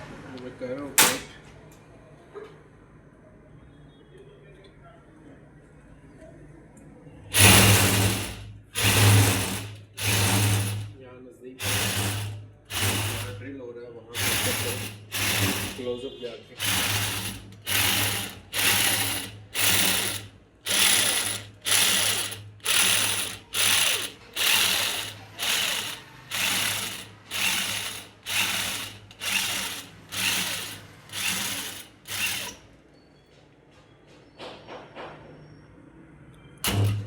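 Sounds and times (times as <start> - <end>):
drill scraping metal: 7.3 - 11.0, 11.6 - 13.4, 14.1 - 32.7, 36.6 - 37.0.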